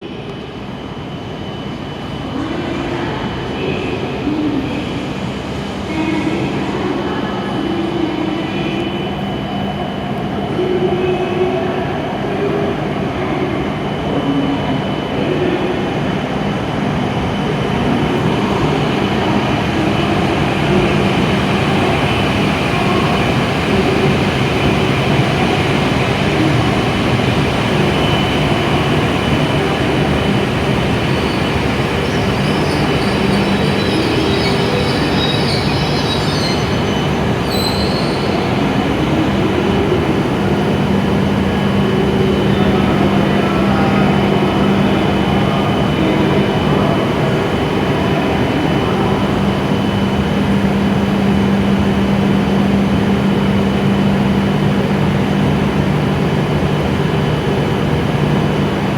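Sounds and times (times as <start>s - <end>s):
stopped train humming: 0.1s - 58.9s
train braking to a stop: 0.3s - 58.9s
high brake squeal: 31.1s - 38.6s.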